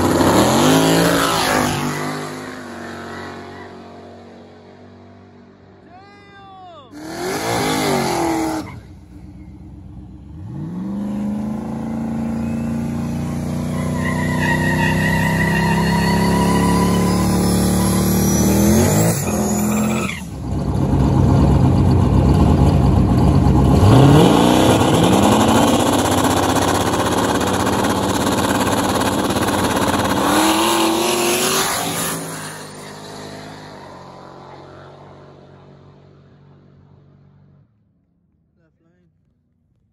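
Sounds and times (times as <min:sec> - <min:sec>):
cars accelerating hard: 0:00.0 - 0:04.7, 0:06.9 - 0:09.0, 0:10.2 - 0:36.7
car engine revving high: 0:07.0 - 0:09.0, 0:10.2 - 0:33.6.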